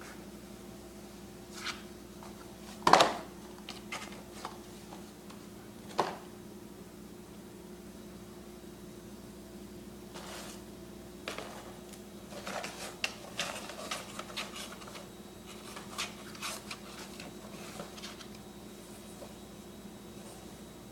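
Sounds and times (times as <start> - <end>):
steady low hum: 0.0 - 20.9
kitten scratching a surface: 12.4 - 18.3.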